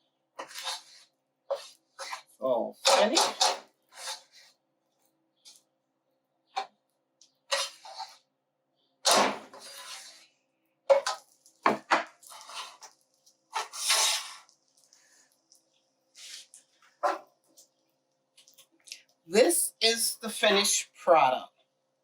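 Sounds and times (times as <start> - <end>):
dishes scraping: 0.4 - 4.5, 7.5 - 8.2.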